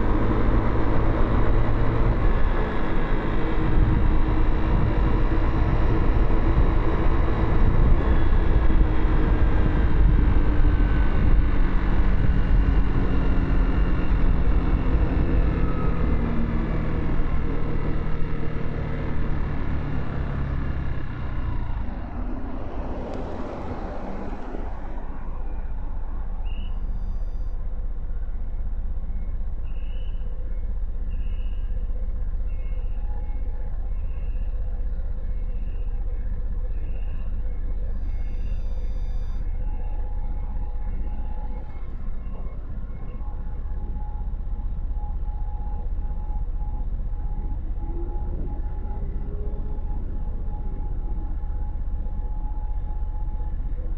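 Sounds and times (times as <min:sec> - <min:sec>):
rush of noise passing: 0:00.0 - 0:26.5
city traffic: 0:00.0 - 0:53.9
short high beeps: 0:38.0 - 0:39.4.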